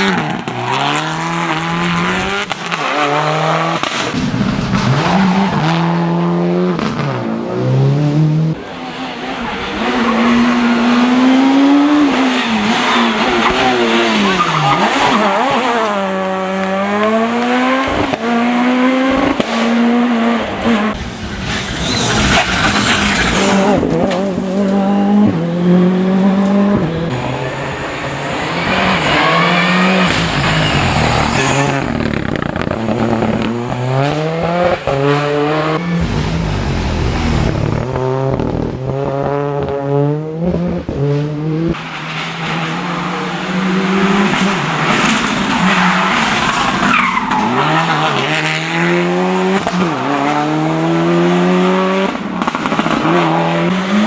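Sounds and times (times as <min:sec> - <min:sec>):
rally car engines revving: 0:00.0 - 0:54.0
tyre squeal: 0:12.3 - 0:17.2, 0:21.0 - 0:25.2, 0:27.1 - 0:34.3, 0:45.6 - 0:48.6.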